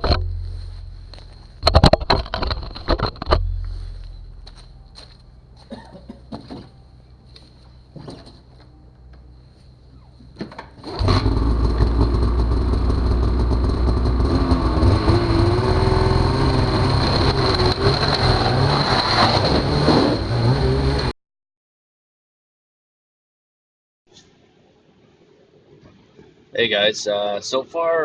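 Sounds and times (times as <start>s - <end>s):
snowmobile engine running loud: 10.9s - 21.1s.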